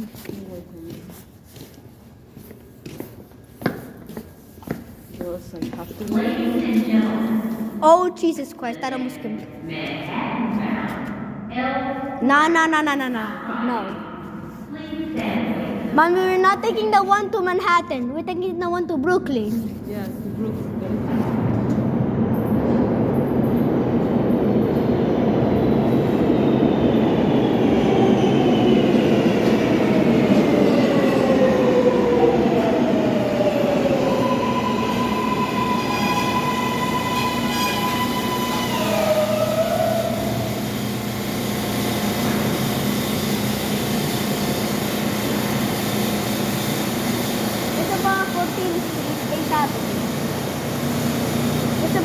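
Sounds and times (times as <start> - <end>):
subway train rumbling: 0.0 - 52.0
falling whine of slowing train: 20.4 - 52.0.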